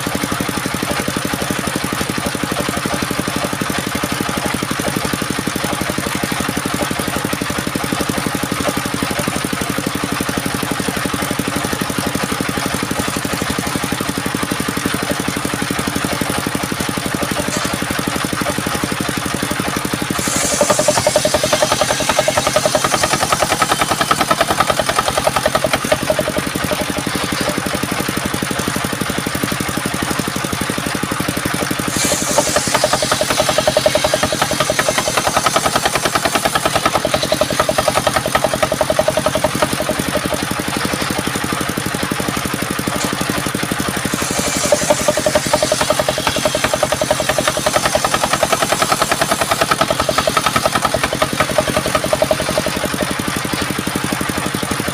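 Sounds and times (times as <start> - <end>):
sawmill engine running: 0.0 - 54.9
high hiss: 20.2 - 25.3.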